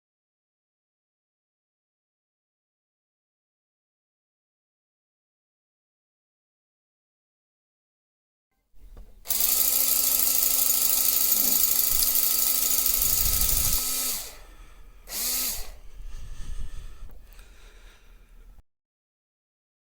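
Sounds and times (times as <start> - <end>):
power tool motor whine: 8.8 - 17.8.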